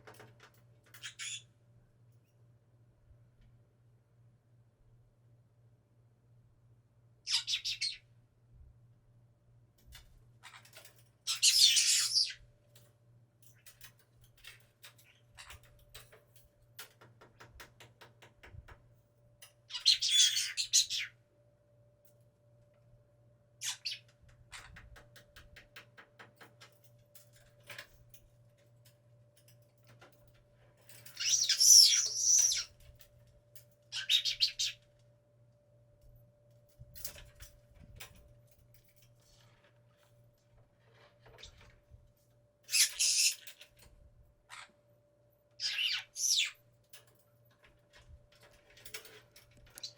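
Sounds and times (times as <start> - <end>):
faint steady hum: 0.0 - 49.9
parrot screeching calls: 7.3 - 8.0, 11.3 - 12.4, 19.7 - 21.1, 31.2 - 32.7, 33.9 - 34.8, 42.7 - 43.4, 45.6 - 46.6.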